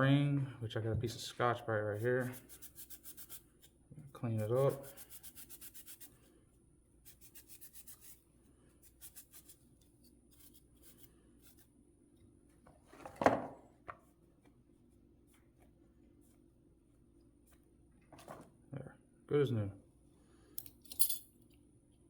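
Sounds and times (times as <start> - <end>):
scrub pad scrubbing metal hub: 1.9 - 6.1.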